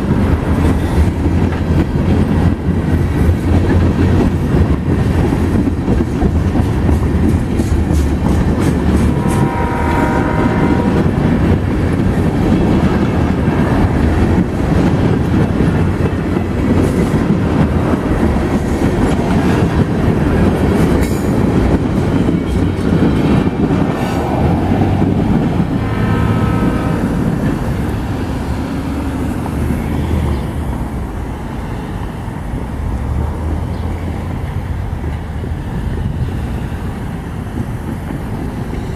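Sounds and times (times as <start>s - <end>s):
high ringing tone: 25.8s - 28.6s.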